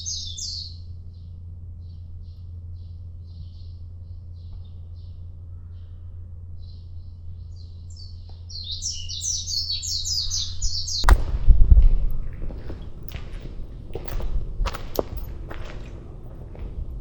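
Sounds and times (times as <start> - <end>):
songbirds chirping: 0.0 - 17.0
rumbling thump and rustle: 10.8 - 17.0.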